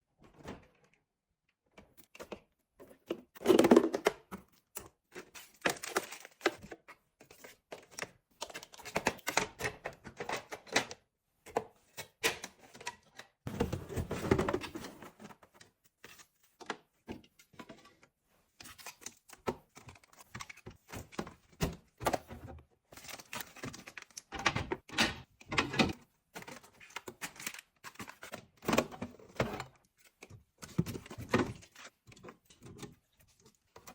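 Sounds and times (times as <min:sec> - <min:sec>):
containers clicking and knocking: 0:03.0 - 0:04.5.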